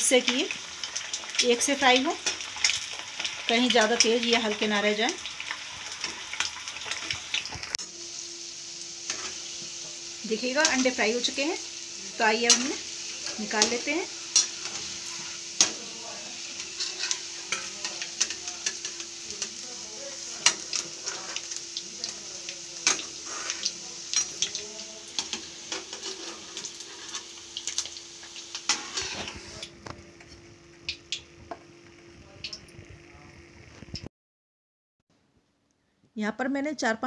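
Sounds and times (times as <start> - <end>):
eggs sizzling in oil: 0.0 - 34.1
metal spatula scraping pan: 12.5 - 15.9, 16.5 - 18.9, 20.4 - 21.4, 22.8 - 23.7, 25.3 - 27.3, 28.7 - 29.6.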